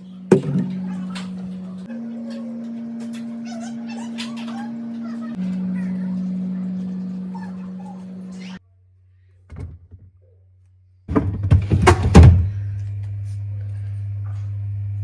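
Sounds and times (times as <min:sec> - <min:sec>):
steady hum: 0:00.0 - 0:08.6
clattering thuds and knocks: 0:09.5 - 0:10.2, 0:11.1 - 0:12.6.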